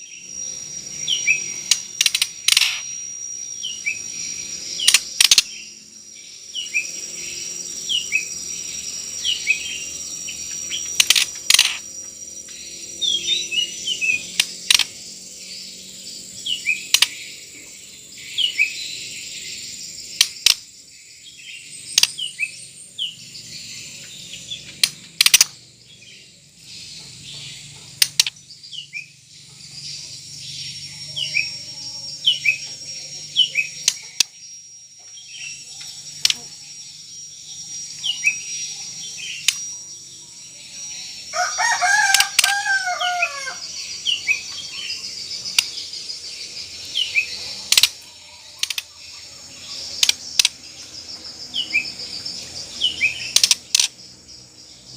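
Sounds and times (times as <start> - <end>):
lower bird call with falling notes: 0.0 - 54.0
bird chirping call: 0.0 - 54.9
sharp loud clicks: 1.6 - 2.9, 4.8 - 5.5, 10.8 - 11.9, 14.3 - 15.1, 20.1 - 20.7, 24.6 - 25.6, 28.0 - 28.4, 36.2 - 36.5, 39.4 - 39.7, 45.5 - 45.8, 47.6 - 48.0, 49.9 - 50.6, 53.2 - 54.0.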